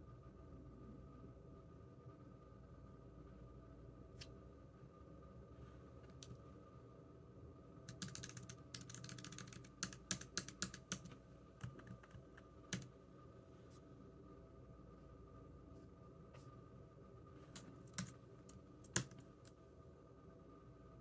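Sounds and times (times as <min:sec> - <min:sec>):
keyboard typing: 0:07.9 - 0:12.9, 0:17.5 - 0:19.5.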